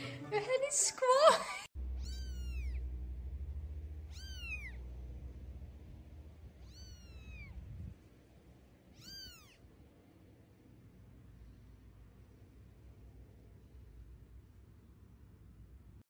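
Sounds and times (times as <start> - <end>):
low hum: 1.8 - 16.0
kitten meowing: 2.0 - 2.8, 4.0 - 4.8, 6.5 - 7.7, 8.9 - 9.6.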